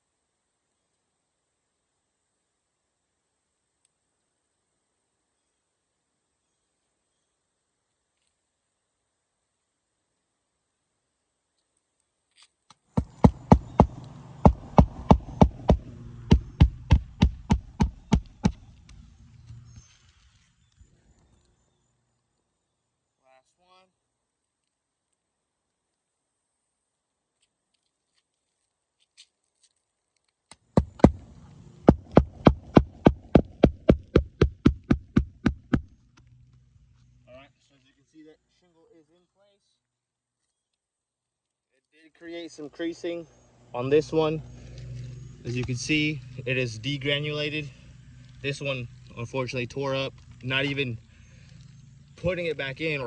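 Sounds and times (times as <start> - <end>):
hammer striking nails: 13.0 - 18.6, 30.7 - 31.2, 31.8 - 35.9.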